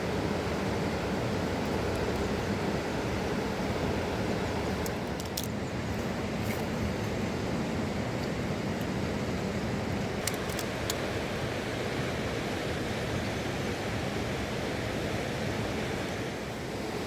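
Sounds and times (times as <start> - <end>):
mountain river rushing: 0.0 - 17.0
small clicks: 4.8 - 5.5, 10.2 - 11.0.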